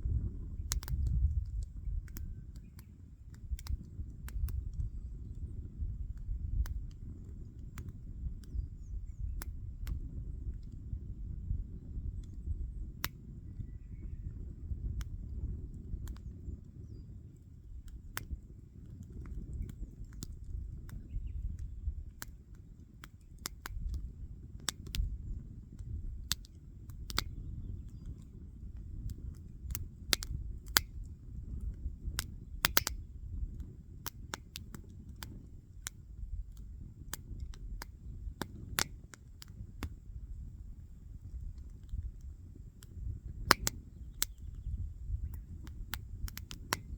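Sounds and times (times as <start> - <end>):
low steady rumble: 0.0 - 46.9
wood fire crackling: 15.2 - 44.4, 45.4 - 46.9.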